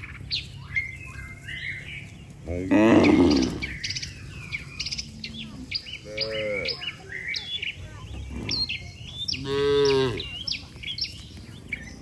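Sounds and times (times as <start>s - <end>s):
small birds chirping: 0.0s - 12.0s
cattle lowing: 2.5s - 3.9s.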